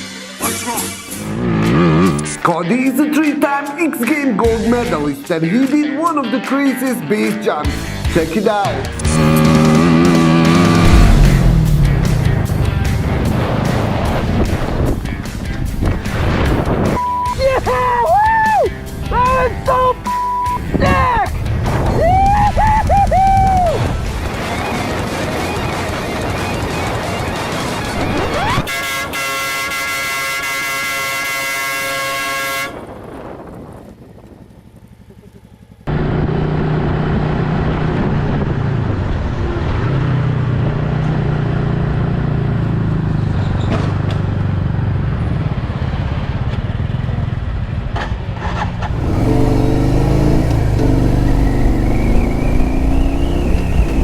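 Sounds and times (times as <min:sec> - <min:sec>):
motorcycle engine revving: 0:01.1 - 0:02.4, 0:09.0 - 0:16.6, 0:34.3 - 0:38.5, 0:48.4 - 0:54.0
steady held tone: 0:48.9 - 0:54.0.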